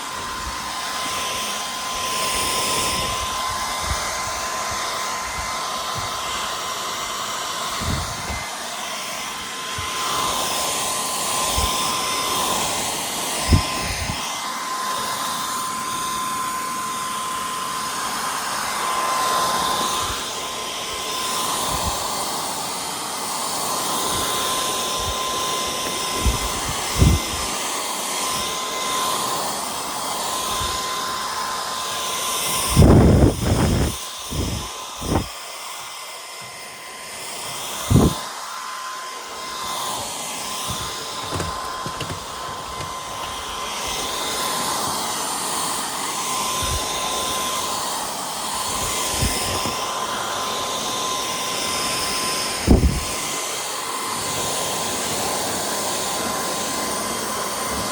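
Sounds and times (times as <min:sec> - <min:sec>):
stick vacuum running: 0:00.0 - 0:57.9
short thumps: 0:40.7 - 0:43.4.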